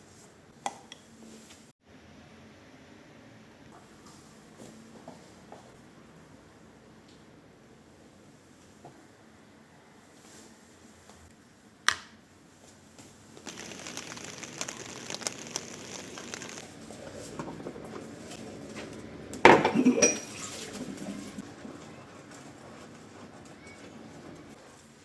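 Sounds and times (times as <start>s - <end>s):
steady hiss: 13.4s - 17.0s
dishes clattering: 19.4s - 21.4s
dish clinking: 19.5s - 21.3s.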